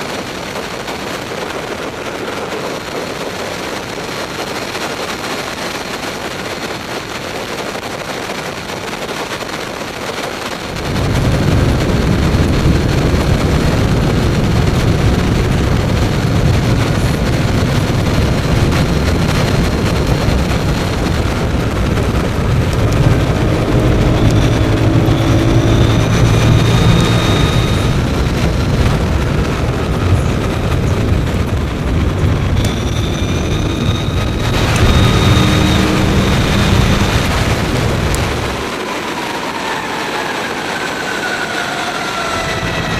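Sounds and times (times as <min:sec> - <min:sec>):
wind and road noise: 0:00.0 - 0:42.9
loud low rumble: 0:10.6 - 0:42.9
electric motor whine: 0:10.7 - 0:42.9.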